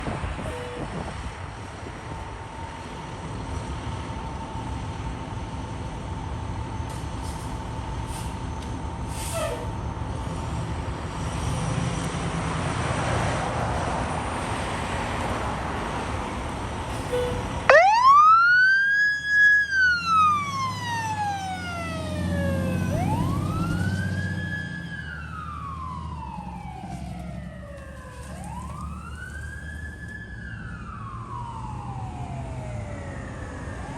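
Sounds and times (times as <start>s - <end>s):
fire engine rumble: 0.0s - 33.9s
wailing siren: 0.3s - 1.3s, 17.0s - 33.9s.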